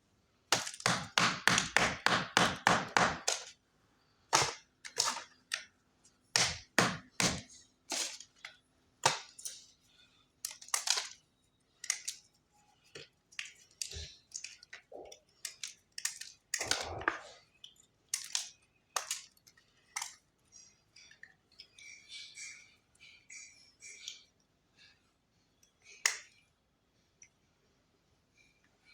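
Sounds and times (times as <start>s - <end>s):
chalk snapping and cracking: 13.0s - 17.3s, 18.1s - 20.2s.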